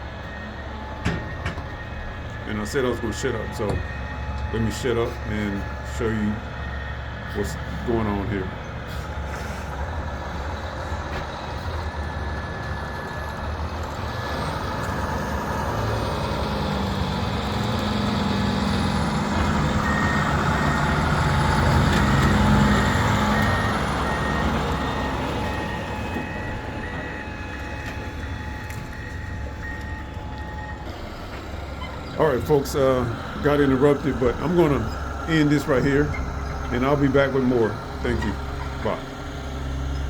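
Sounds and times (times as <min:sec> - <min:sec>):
heavy diesel equipment running: 0:00.0 - 0:40.0
reversing alarm beeping: 0:00.0 - 0:40.0.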